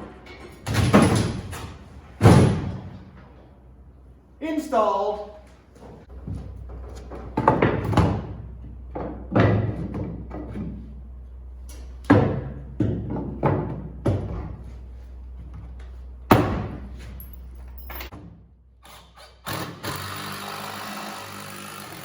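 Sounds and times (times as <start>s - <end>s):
wooden boards being knocked: 7.2s - 10.8s.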